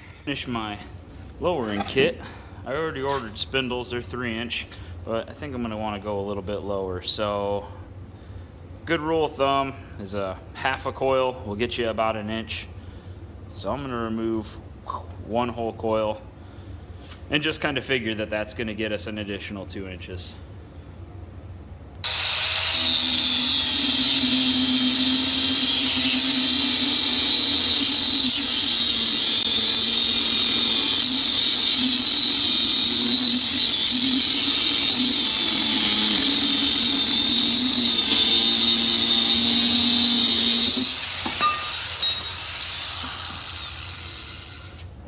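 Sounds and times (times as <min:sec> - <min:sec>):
angle grinder cutting steel: 0:22.0 - 0:44.8
grinder wheel winding down: 0:22.0 - 0:44.8.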